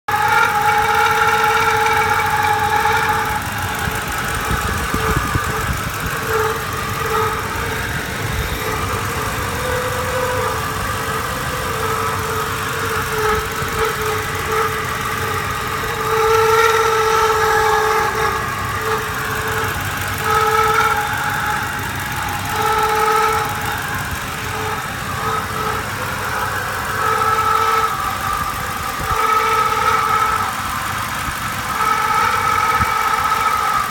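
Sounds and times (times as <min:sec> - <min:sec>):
steady-pitched whine: 0:00.0 - 0:33.9
truck engine running: 0:00.0 - 0:33.9.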